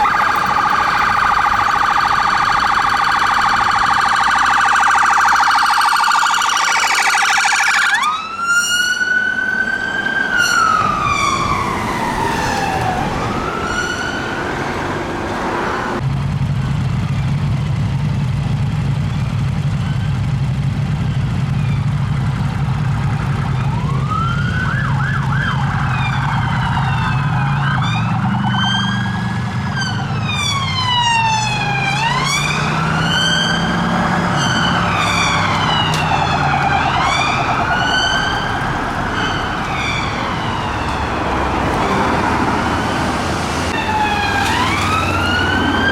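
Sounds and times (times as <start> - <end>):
siren fast warble: 0.0 - 14.7, 22.9 - 42.2, 43.7 - 45.9
police sirens wailing: 0.0 - 16.1, 19.2 - 45.9
low rumble of traffic: 0.0 - 45.9.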